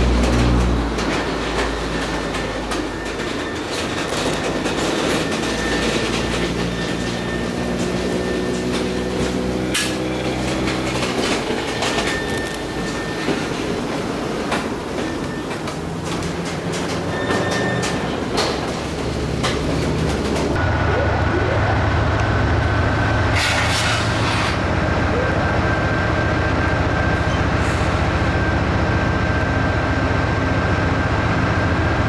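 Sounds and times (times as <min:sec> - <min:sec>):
steel wheels clattering over rail: 0:00.0 - 0:20.6
faint high wheel squeal: 0:01.6 - 0:13.8, 0:16.9 - 0:18.6.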